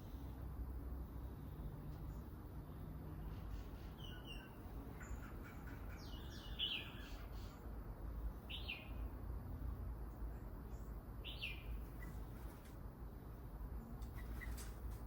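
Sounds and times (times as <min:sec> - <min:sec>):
small birds chirping: 0:01.4 - 0:09.2, 0:10.1 - 0:12.8, 0:13.9 - 0:15.0.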